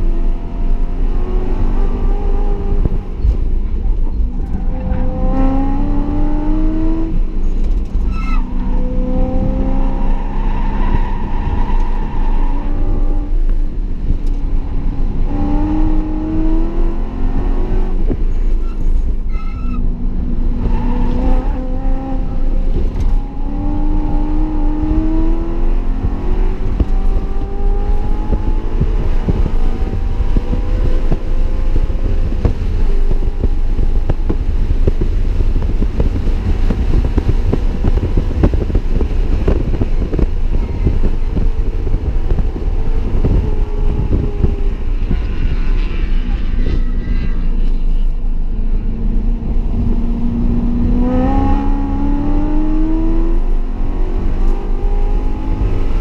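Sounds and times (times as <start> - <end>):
car engine revving: 0.0 - 56.0
brief high squeal: 8.1 - 8.4, 18.6 - 19.8.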